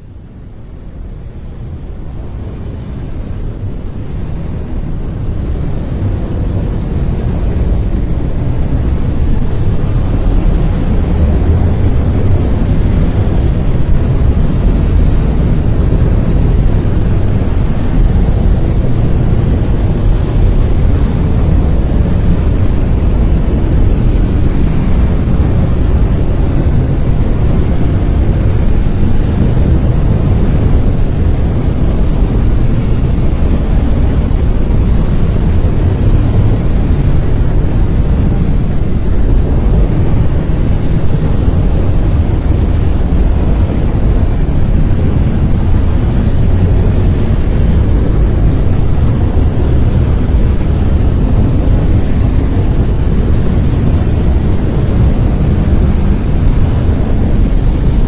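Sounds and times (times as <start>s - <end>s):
deep rumbling hiss: 0.0s - 58.0s.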